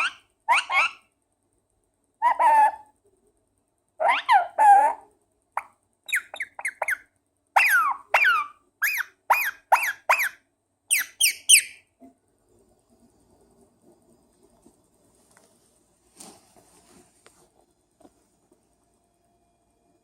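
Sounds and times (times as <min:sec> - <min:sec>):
parakeet squeaky calls: 0:00.0 - 0:01.1, 0:02.2 - 0:02.8, 0:04.0 - 0:05.0, 0:05.6 - 0:11.8.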